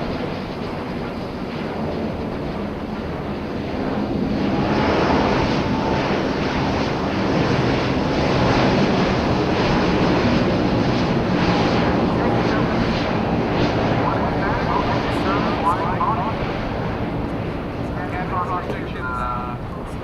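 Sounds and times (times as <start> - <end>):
jet engine noise in flight: 0.0 - 20.0
faint steady whine: 11.5 - 20.0.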